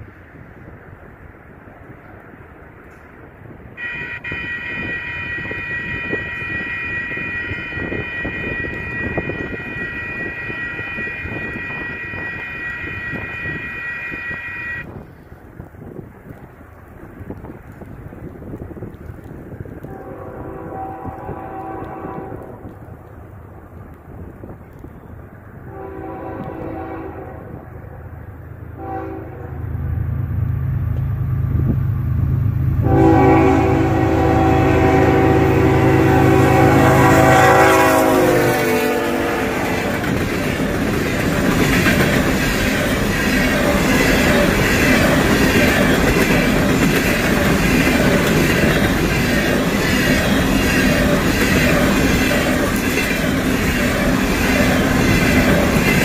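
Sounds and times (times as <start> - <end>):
locomotive air horn: 3.8 - 14.9, 19.8 - 22.6, 25.7 - 28.0, 28.8 - 29.7, 32.8 - 39.9
diesel engine rumble: 29.4 - 37.0
wheels clacking over rail joints: 38.0 - 56.0.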